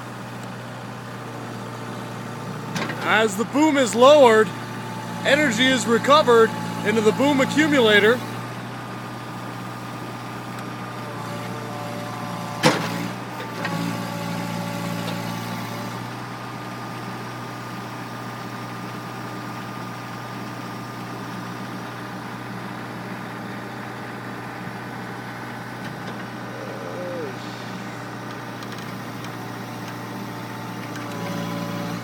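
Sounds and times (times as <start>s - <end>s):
excavator engine running: 0.4s - 10.0s, 22.6s - 32.0s.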